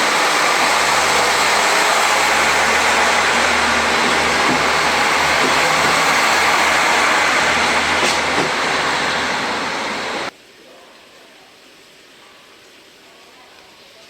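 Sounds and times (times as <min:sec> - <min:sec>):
train rushing: 0:00.0 - 0:10.3.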